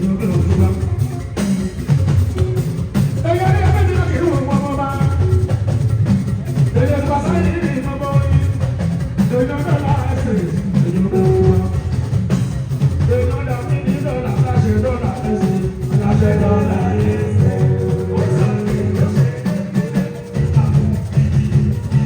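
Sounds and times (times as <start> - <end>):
drums and percussion: 0.0 - 22.0
person singing: 13.2 - 22.0.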